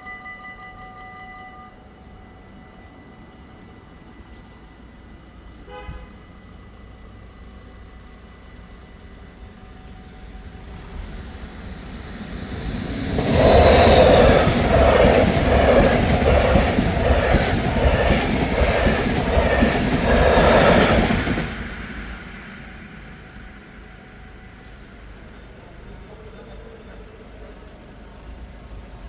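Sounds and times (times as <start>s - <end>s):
electric train passing: 0.0s - 29.0s
train wheels clattering: 10.4s - 25.2s.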